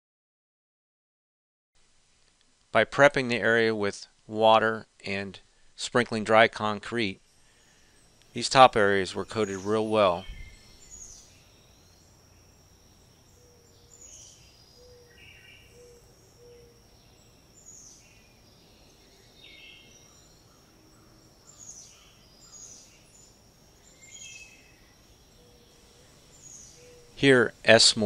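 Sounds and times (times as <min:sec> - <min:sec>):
low background hum: 0:01.8 - 0:28.0
bird chirps: 0:07.4 - 0:28.0.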